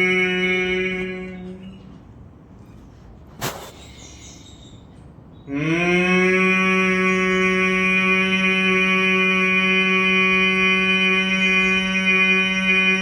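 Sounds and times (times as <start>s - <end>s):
person humming: 5.5s - 8.8s.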